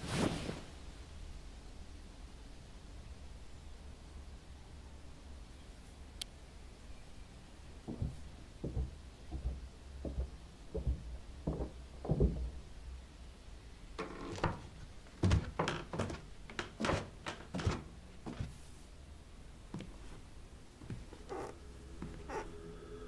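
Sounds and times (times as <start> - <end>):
footsteps on stairs: 7.8 - 12.7, 14.0 - 18.6.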